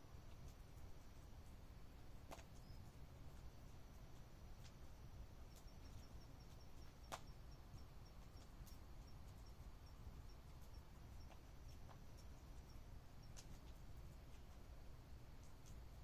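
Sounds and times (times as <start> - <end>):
high cricket chirps: 4.6 - 14.1.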